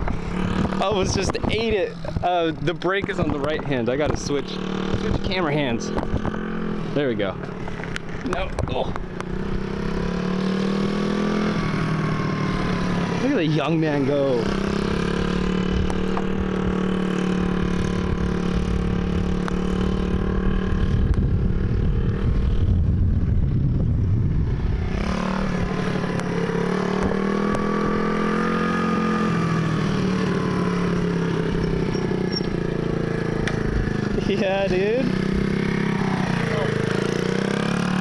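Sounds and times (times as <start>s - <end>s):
dirt bike engine running: 0.0s - 38.0s
low rumbling noise: 15.3s - 26.7s.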